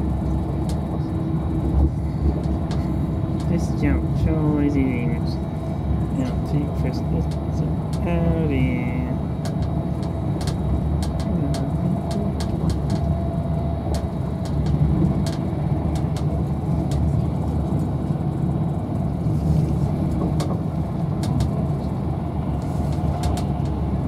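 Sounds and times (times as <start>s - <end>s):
train wheels rumbling on track: 0.0s - 24.0s
sharp clicks and ticks: 9.4s - 13.1s.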